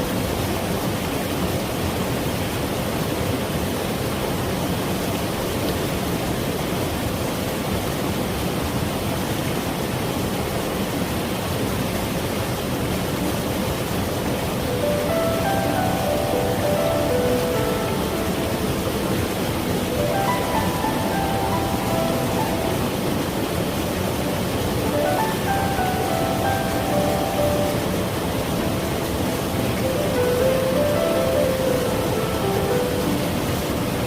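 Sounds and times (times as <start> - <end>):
stream rushing: 0.0 - 34.0
gentle music: 14.5 - 34.0.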